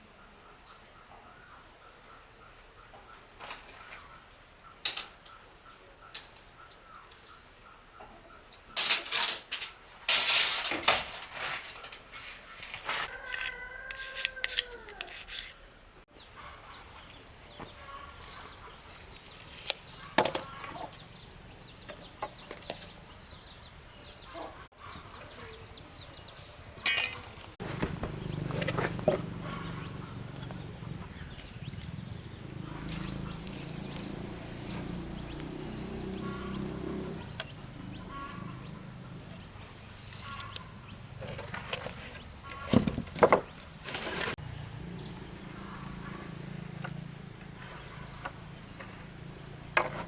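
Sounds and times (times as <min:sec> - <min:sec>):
chickens clucking: 0:16.2 - 0:43.7, 0:44.4 - 0:50.0.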